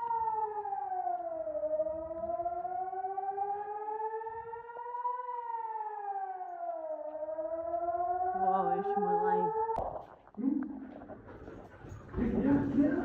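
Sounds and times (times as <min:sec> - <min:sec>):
air-raid siren wailing: 0:00.0 - 0:09.8.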